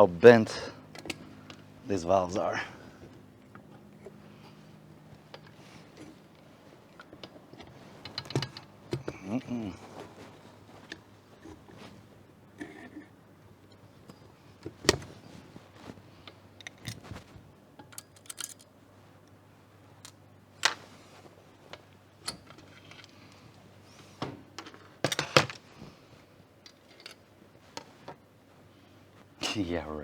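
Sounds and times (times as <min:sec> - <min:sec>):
metal tools clinking: 0:17.8 - 0:18.7.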